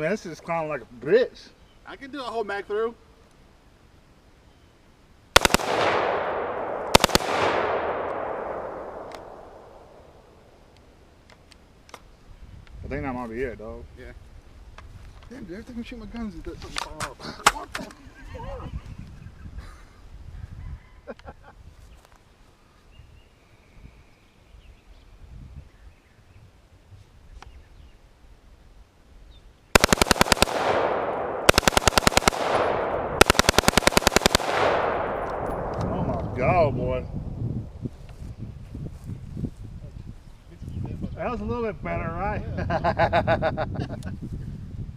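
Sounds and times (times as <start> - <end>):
rifle firing bursts: 5.4 - 10.2, 29.8 - 35.8
gunshot echo rolling: 5.4 - 10.6, 29.8 - 37.4.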